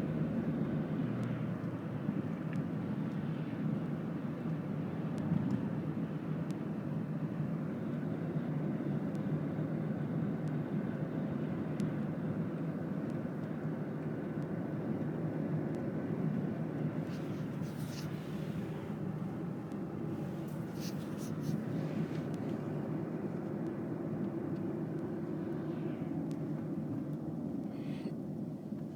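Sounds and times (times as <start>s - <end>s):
car road noise from inside cabin: 12.3s - 27.7s.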